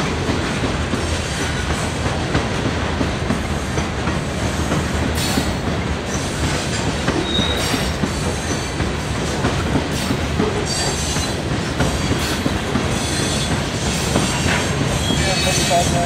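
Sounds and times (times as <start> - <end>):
train wheels rumbling and clattering: 0.0 - 16.0
high wheel squeal: 7.2 - 7.8, 14.2 - 16.0.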